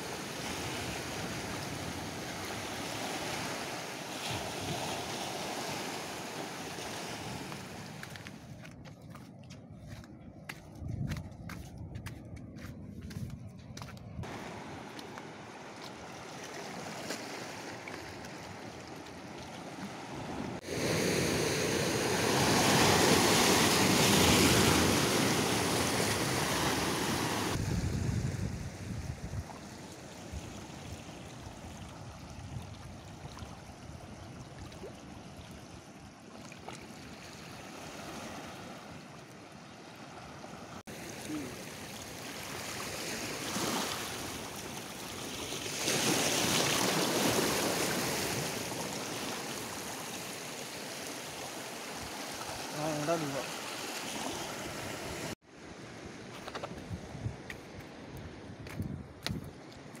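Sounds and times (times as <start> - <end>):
loud water rushing: 14.2 - 15.7, 20.6 - 27.6.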